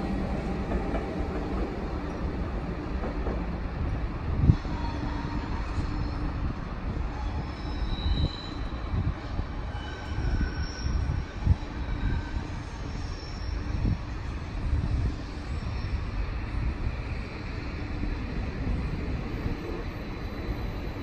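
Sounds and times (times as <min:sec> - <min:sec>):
train rumbling over points: 0:00.0 - 0:06.3
train thump: 0:02.8 - 0:03.6
wheel squeals: 0:07.2 - 0:08.8, 0:09.7 - 0:13.8.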